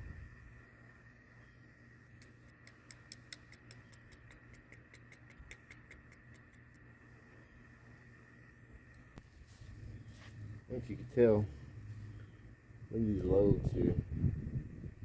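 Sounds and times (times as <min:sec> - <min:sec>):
faint high whine: 0:00.0 - 0:15.0
low hum: 0:00.0 - 0:15.0
light evenly spaced clicks: 0:02.2 - 0:06.9.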